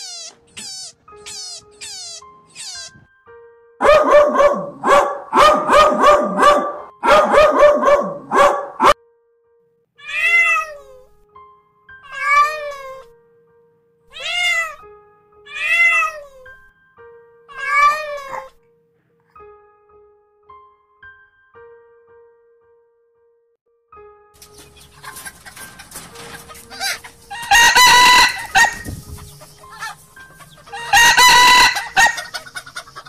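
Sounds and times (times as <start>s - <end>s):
loud yelping calls: 0.0s - 3.0s, 24.6s - 33.0s
cat meowing: 0.0s - 3.1s, 10.0s - 11.2s, 12.0s - 13.1s, 14.1s - 14.9s, 15.5s - 16.6s, 17.5s - 18.6s
faint background music: 0.0s - 21.2s, 24.0s - 33.0s.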